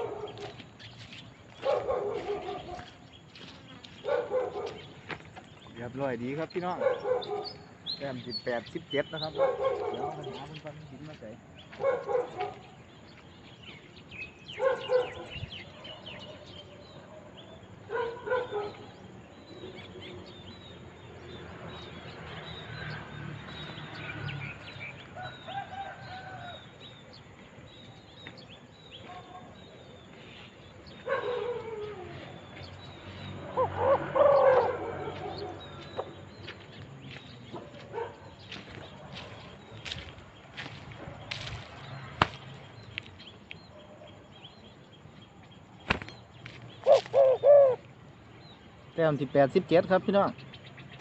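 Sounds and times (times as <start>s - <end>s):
small birds chirping: 0.0s - 51.0s
doves cooing: 30.8s - 32.7s, 33.4s - 36.2s, 46.8s - 47.9s.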